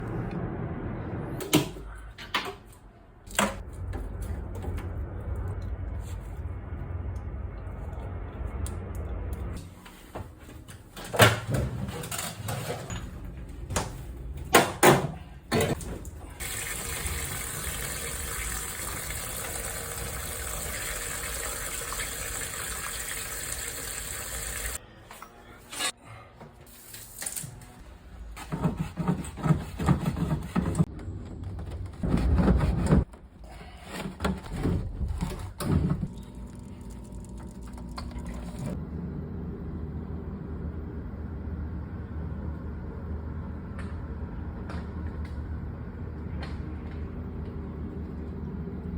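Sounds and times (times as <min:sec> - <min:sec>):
water rushing through pipes: 0:16.0 - 0:24.8, 0:36.1 - 0:38.8.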